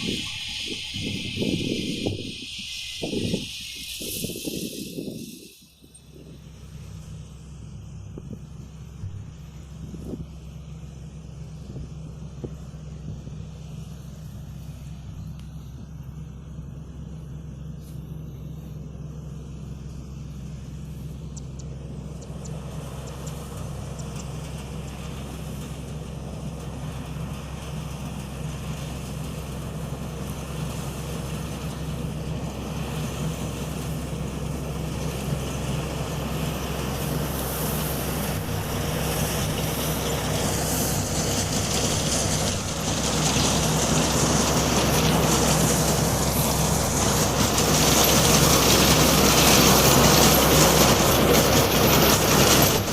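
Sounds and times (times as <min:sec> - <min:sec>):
machine rushing noise: 0:00.0 - 0:09.4, 0:22.4 - 0:52.9
combine harvester diesel engine: 0:00.0 - 0:52.9.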